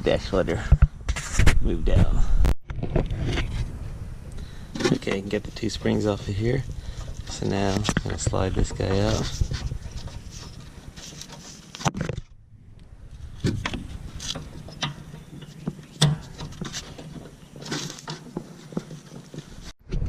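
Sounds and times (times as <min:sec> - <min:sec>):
metal scrapes clicks and knocks: 0:04.7 - 0:12.4, 0:13.2 - 0:19.7.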